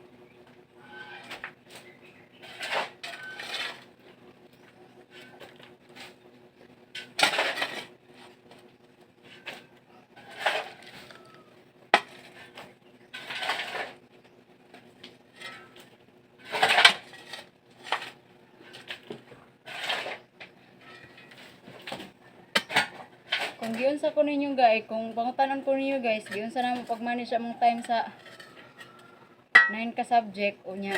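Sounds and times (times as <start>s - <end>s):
metal tools scraping on gritty surface: 1.0s - 3.9s, 6.9s - 8.4s, 9.2s - 11.4s, 12.0s - 14.0s, 15.3s - 24.1s, 26.0s - 29.9s.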